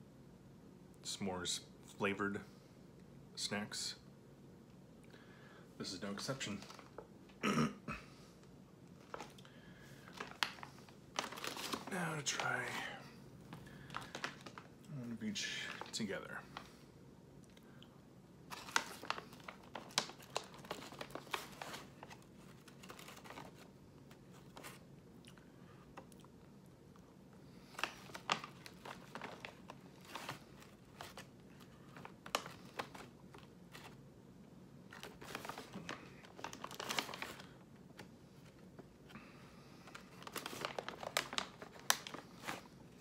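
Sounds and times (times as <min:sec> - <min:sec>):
plastic packaging crinkling: 0:06.2 - 0:07.0, 0:08.9 - 0:16.8, 0:18.5 - 0:24.8, 0:27.6 - 0:34.0, 0:34.8 - 0:38.9, 0:39.8 - 0:43.0.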